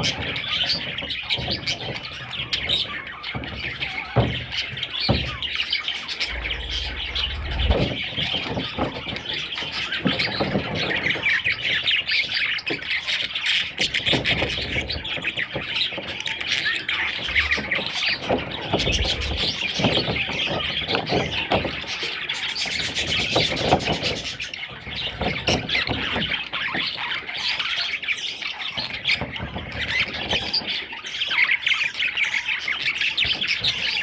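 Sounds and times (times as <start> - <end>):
budgerigars chattering and squawking: 0.0 - 8.1, 12.4 - 34.0
low knocks: 6.3 - 8.0.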